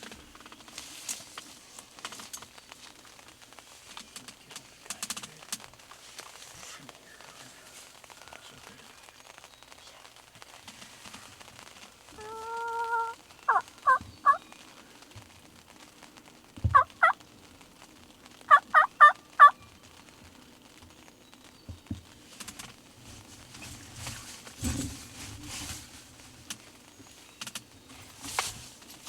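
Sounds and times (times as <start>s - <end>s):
turkey calling: 12.1s - 14.7s, 16.7s - 17.2s, 18.5s - 19.6s.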